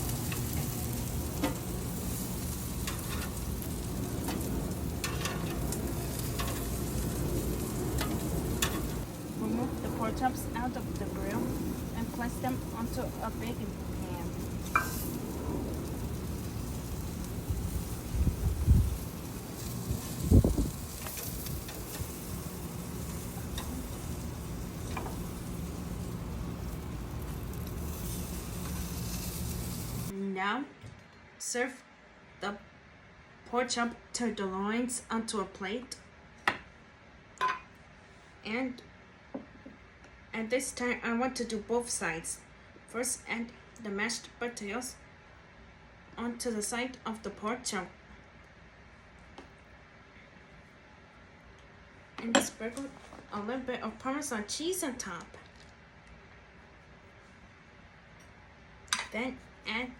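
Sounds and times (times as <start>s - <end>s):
meat sizzling on a grill: 0.0s - 30.1s
fire crackles: 0.0s - 30.2s.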